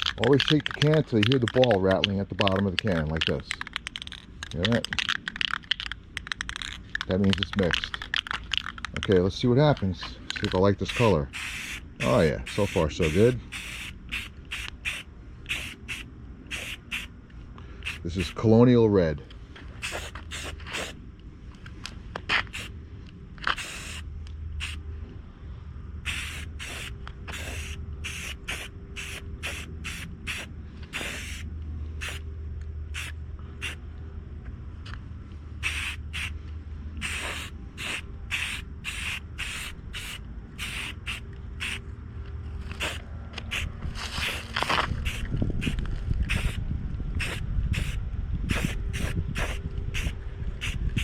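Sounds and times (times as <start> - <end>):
spray-paint can hissing: 10.9 - 17.1, 17.8 - 18.0, 19.8 - 21.0, 22.5 - 22.7, 23.5 - 24.0, 24.6 - 24.8, 26.1 - 32.2, 32.9 - 33.8, 35.6 - 36.4, 37.0 - 41.8, 42.8 - 46.6, 47.2 - 51.0.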